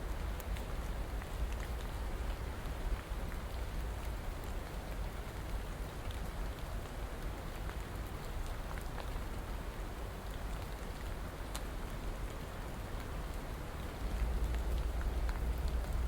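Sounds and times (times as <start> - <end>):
steady rain hiss: 0.0 - 16.0
single raindrop patters: 12.3 - 16.0.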